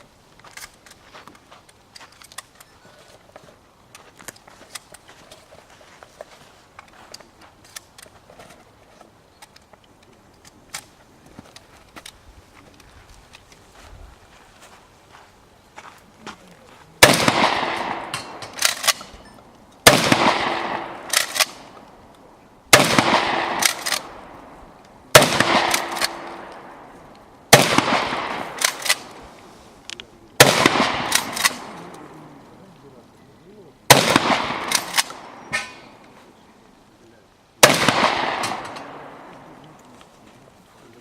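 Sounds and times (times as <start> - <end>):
shotgun blasts echoing: 17.0 - 19.2, 19.8 - 21.8, 22.7 - 26.9, 27.5 - 29.2, 30.4 - 32.1, 33.9 - 36.0, 37.6 - 39.6.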